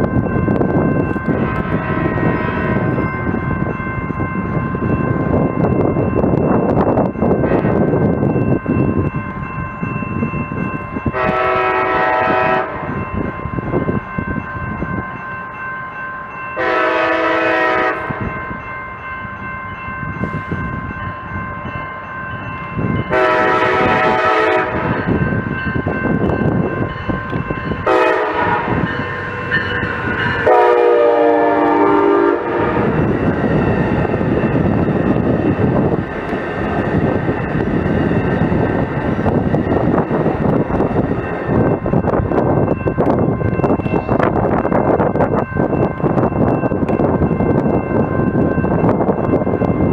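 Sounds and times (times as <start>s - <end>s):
moving train rumble: 0.0s - 49.9s
train air horn blasts: 1.4s - 2.8s, 11.1s - 12.9s, 16.6s - 18.3s, 23.1s - 25.1s, 27.8s - 29.0s, 30.3s - 33.0s.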